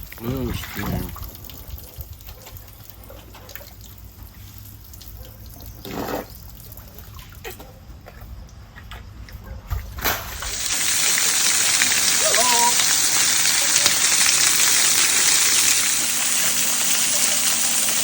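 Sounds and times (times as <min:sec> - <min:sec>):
water trickling in a stream: 0:00.0 - 0:08.7, 0:10.3 - 0:18.0
loud steady hiss: 0:10.3 - 0:18.0.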